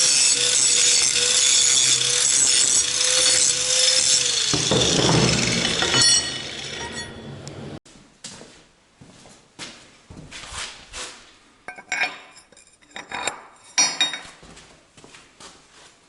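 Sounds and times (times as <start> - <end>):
power tool grinding metal: 0.0 - 7.6.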